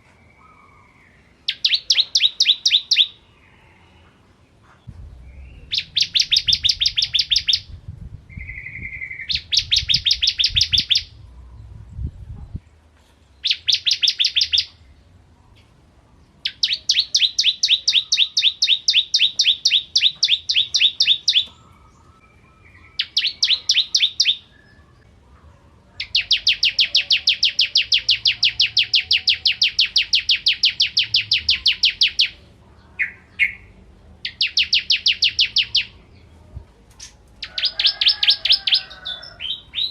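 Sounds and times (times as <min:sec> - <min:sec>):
bird singing rapid trills: 0:00.5 - 0:03.2, 0:05.2 - 0:07.7, 0:08.4 - 0:11.2, 0:13.4 - 0:14.8, 0:16.4 - 0:25.0, 0:26.0 - 0:32.4, 0:33.0 - 0:36.0.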